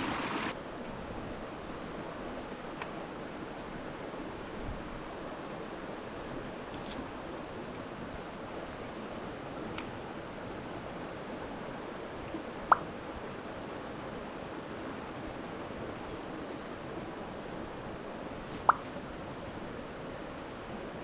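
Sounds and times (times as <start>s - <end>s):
stream water rushing: 0.0s - 21.0s
sharp water plop: 18.6s - 18.9s.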